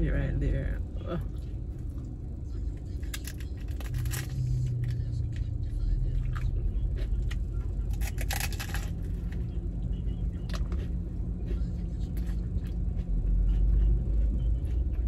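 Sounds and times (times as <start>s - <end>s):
car engine rumbling: 0.0s - 15.0s
crunchy taco being chewed: 1.2s - 15.0s.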